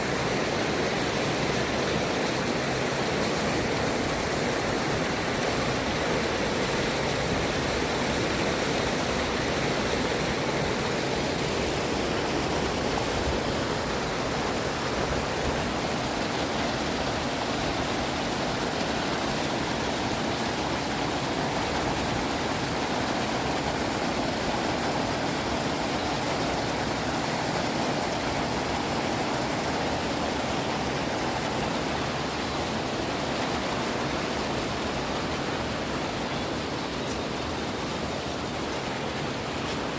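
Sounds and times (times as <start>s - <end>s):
stream flowing water: 0.0s - 39.9s.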